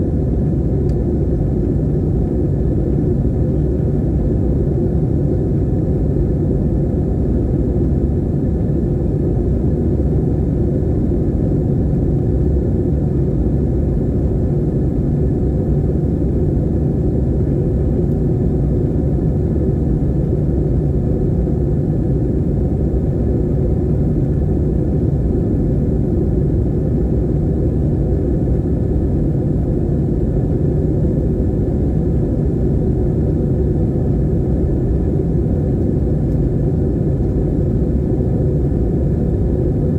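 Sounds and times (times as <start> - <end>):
aircraft cabin rumble: 16.3 - 39.9.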